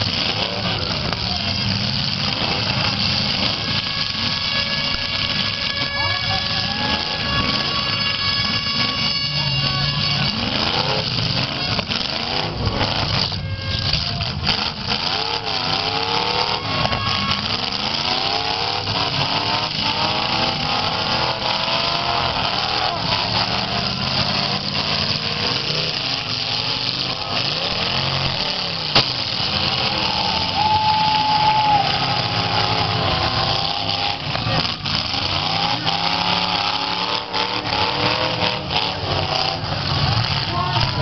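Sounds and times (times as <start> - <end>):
unmuffled engines revving: 0.0 - 41.0
sharp bang: 28.9 - 29.4.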